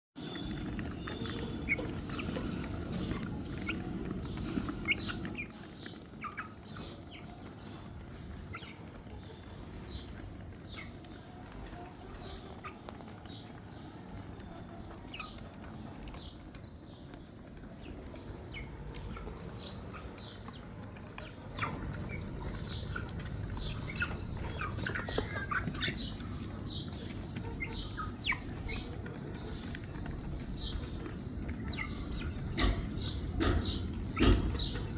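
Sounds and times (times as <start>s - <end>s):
chicks peeping: 0.2s - 34.9s.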